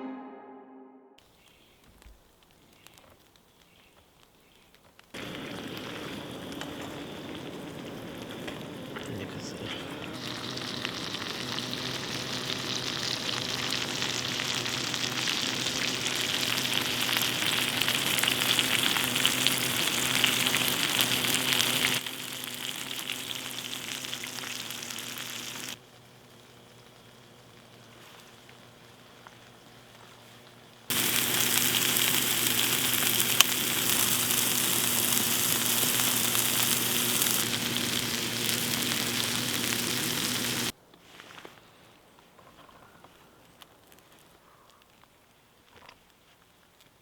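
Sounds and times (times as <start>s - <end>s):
rain pattering: 5.0s - 40.7s.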